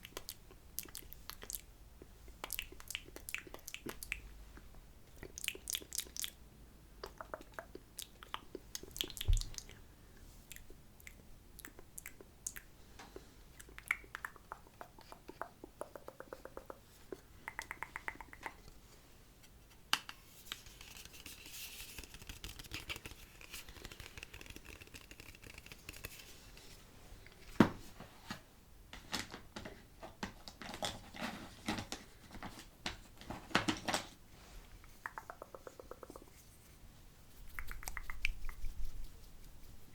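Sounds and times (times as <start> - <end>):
wet lip smacks: 0.0 - 1.7, 2.4 - 4.2, 5.2 - 6.4, 7.0 - 9.8, 10.5 - 12.7, 13.6 - 18.6, 34.8 - 36.3, 37.4 - 39.1
tongue clicks and pops: 0.0 - 6.4, 7.0 - 9.8, 10.5 - 18.7, 34.8 - 36.3, 37.4 - 38.9
soft hiss: 0.0 - 28.9, 34.1 - 39.9.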